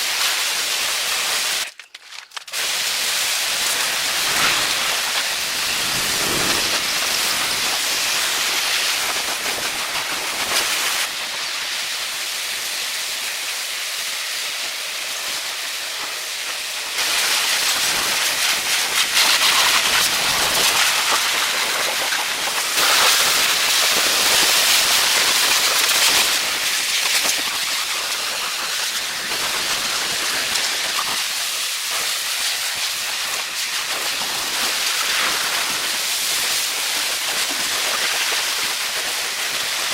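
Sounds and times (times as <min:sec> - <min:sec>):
steady hissing noise: 0:03.3 - 0:12.7.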